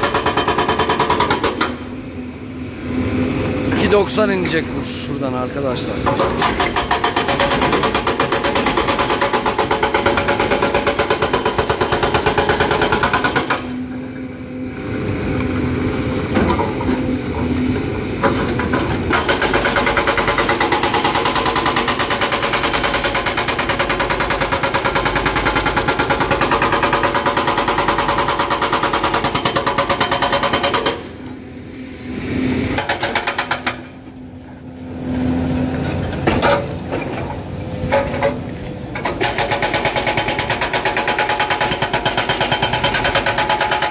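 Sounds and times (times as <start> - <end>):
hydraulic breaker hammering rock: 0.0 - 1.9, 5.8 - 14.0, 18.2 - 31.3, 32.7 - 34.1, 36.1 - 43.9
excavator engine running: 0.0 - 43.9.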